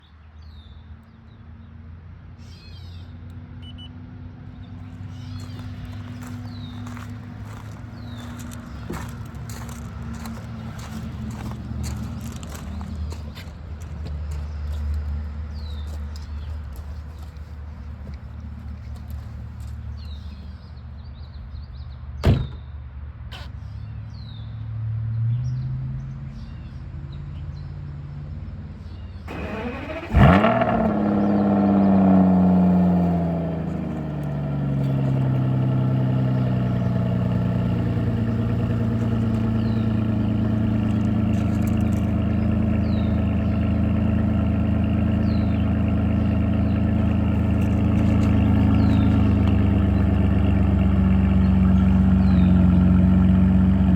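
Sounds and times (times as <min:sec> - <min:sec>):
birds chirping: 0:04.6 - 0:21.9, 0:29.3 - 0:53.9
car engine revving and idling: 0:04.7 - 0:20.4, 0:29.3 - 0:53.9.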